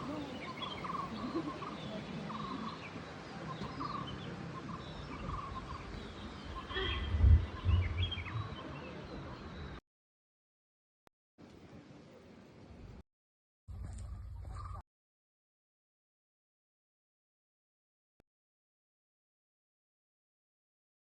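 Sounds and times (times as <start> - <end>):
birds chirping: 0.0 - 9.8, 13.8 - 14.8
loud low rumble: 7.1 - 8.5.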